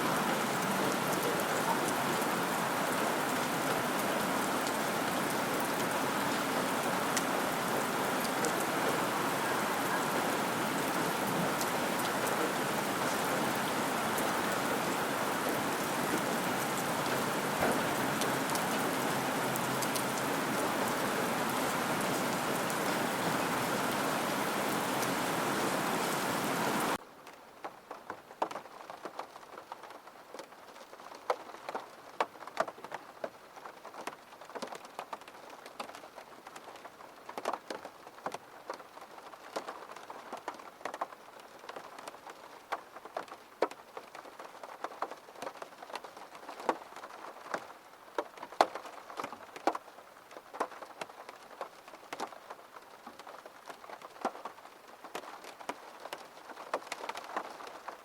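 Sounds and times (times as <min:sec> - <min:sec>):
heavy rain: 0:00.0 - 0:58.0
scattered raindrops ticking: 0:26.9 - 0:58.0.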